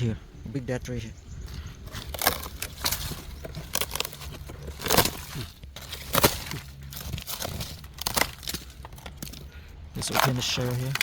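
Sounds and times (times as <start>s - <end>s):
dry wood cracking and snapping: 1.4s - 11.0s.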